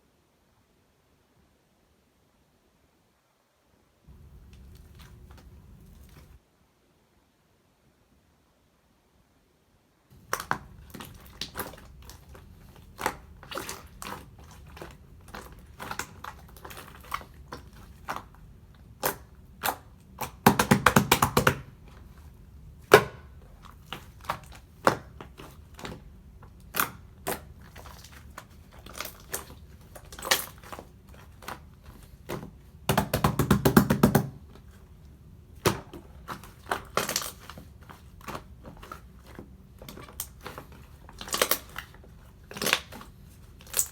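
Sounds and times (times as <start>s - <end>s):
slime crackling: 10.2s - 43.9s
slime squished by hand: 10.2s - 43.9s.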